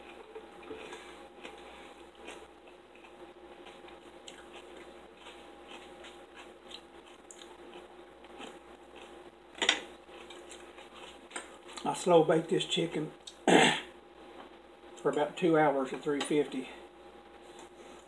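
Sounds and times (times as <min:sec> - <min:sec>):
chewing and biting: 0:00.0 - 0:09.2, 0:10.0 - 0:11.9.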